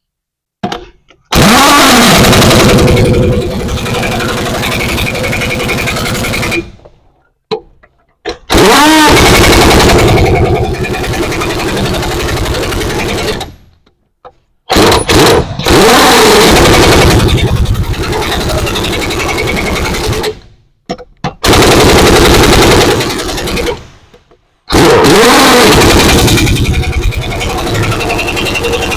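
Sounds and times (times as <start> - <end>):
impact wrench hammering: 7.5 - 13.6, 14.7 - 24.1.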